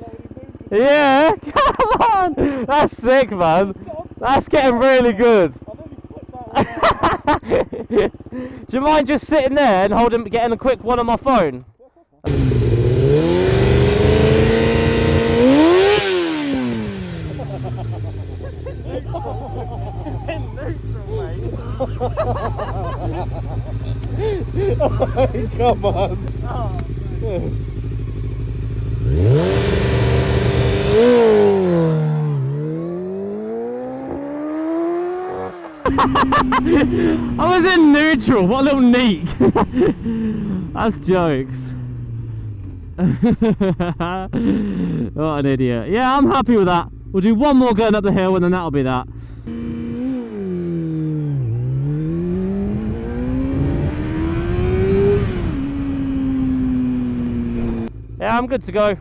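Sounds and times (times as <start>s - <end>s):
motorcycle engine revving: 12.3s - 43.4s, 46.2s - 48.4s, 49.0s - 59.0s.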